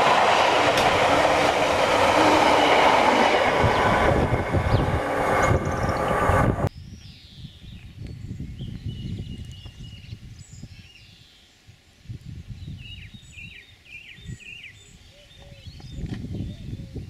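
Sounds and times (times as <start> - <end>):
small birds singing: 3.7 - 11.7, 12.3 - 17.0.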